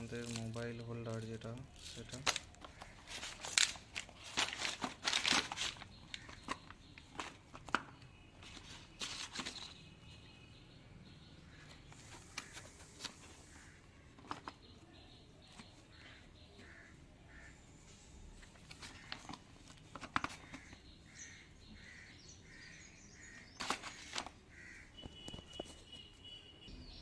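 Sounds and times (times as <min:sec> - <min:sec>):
plastic parts and packaging clicking: 0:00.0 - 0:10.0, 0:14.1 - 0:16.0, 0:18.4 - 0:20.9, 0:23.6 - 0:24.4, 0:25.0 - 0:25.8
bird calling: 0:05.5 - 0:18.1, 0:20.3 - 0:27.0.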